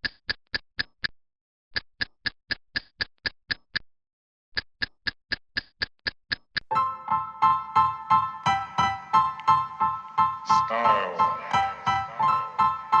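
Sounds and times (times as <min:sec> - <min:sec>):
sharp ticks: 0:00.0 - 0:01.2, 0:01.8 - 0:03.9, 0:04.6 - 0:06.7.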